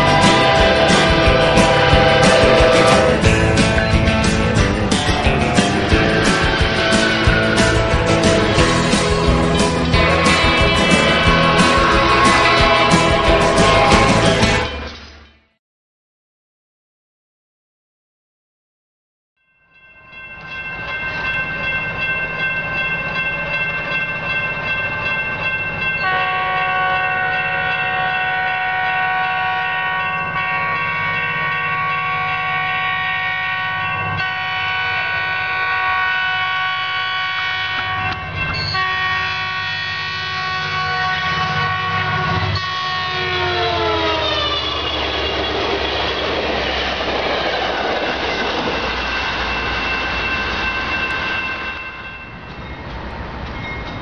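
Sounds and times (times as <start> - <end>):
train horn chord blasts: 0.0 - 3.6, 9.9 - 14.8, 26.0 - 44.5
passing train cars rumbling: 0.0 - 15.4, 19.8 - 54.0.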